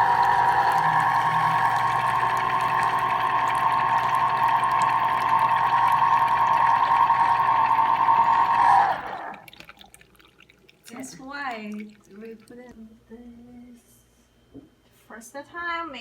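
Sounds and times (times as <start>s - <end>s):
electric juicer motor running: 0.0s - 9.5s.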